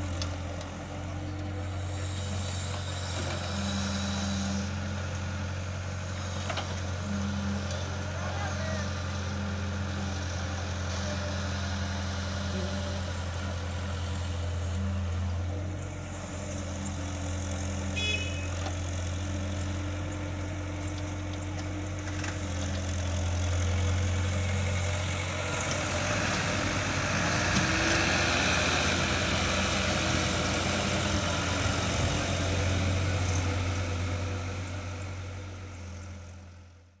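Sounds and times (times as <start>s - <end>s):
tractor engine humming: 0.0s - 37.0s.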